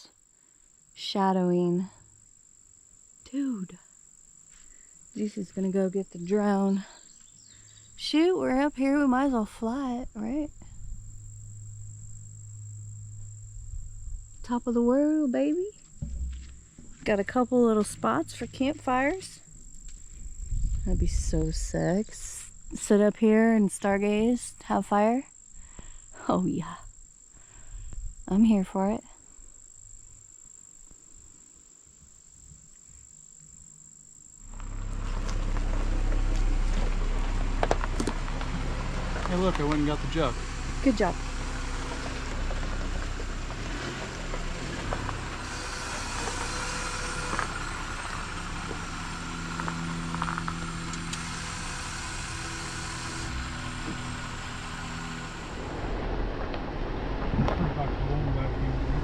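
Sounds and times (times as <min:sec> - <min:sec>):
high-pitched insect drone: 0:01.4 - 0:55.8
road noise: 0:04.4 - 0:23.0, 0:34.4 - 0:59.0
car engine humming: 0:04.5 - 0:23.0, 0:34.4 - 0:59.0
loud rumbling noise: 0:08.0 - 0:15.0, 0:15.7 - 0:22.6, 0:34.5 - 0:59.0
wind noise: 0:08.8 - 0:14.9, 0:16.0 - 0:22.9, 0:27.7 - 0:28.3, 0:55.3 - 0:59.0.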